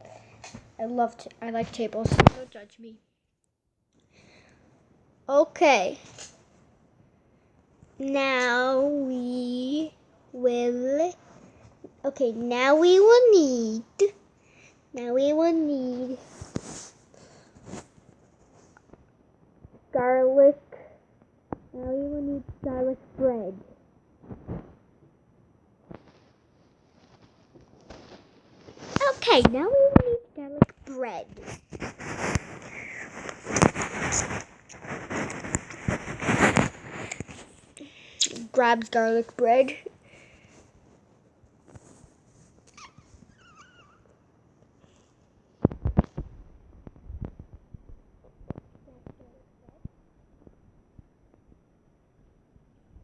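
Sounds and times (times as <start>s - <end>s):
faint high-pitched squeak: 42.7s - 44.2s.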